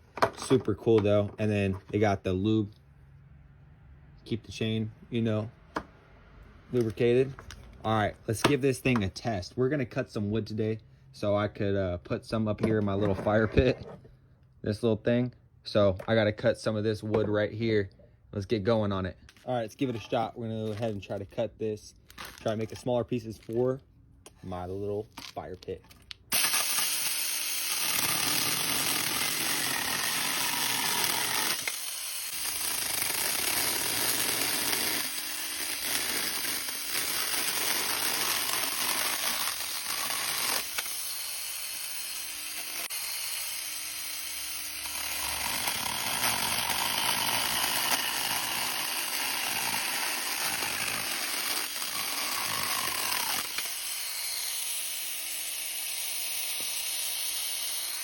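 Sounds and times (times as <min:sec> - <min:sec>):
chainsaw cutting wood: 0:26.3 - 0:58.0.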